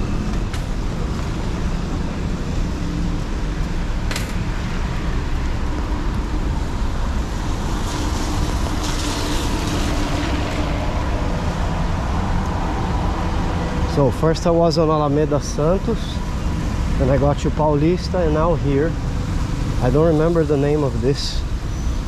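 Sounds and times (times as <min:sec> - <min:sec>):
traffic engine rumble: 0:00.0 - 0:22.0
tyres on wet road: 0:00.0 - 0:22.0
passing vehicle tyre hiss: 0:01.0 - 0:13.8.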